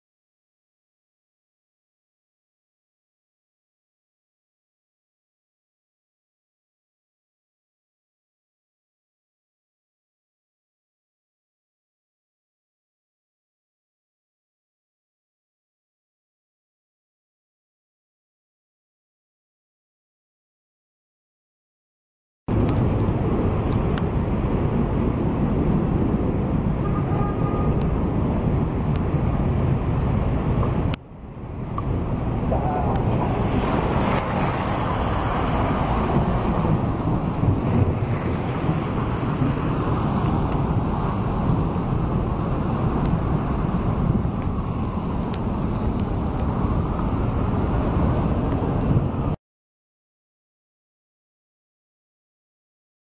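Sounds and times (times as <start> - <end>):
low outdoor rumble: 22.5 - 49.4
wind on microphone: 22.5 - 49.4.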